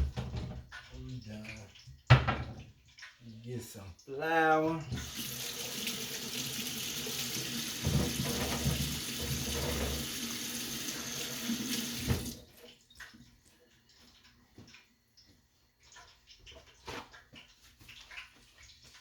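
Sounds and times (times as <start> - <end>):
tap running into a sink: 0.0 - 2.8, 4.9 - 13.2.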